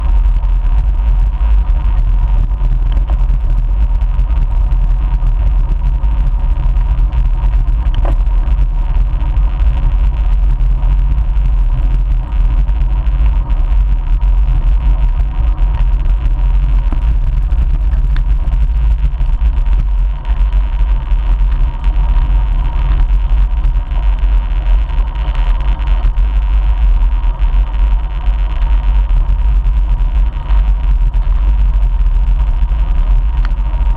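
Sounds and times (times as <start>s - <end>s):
wind buffeting microphone: 0.0s - 24.0s
faint steady whine: 0.0s - 33.9s.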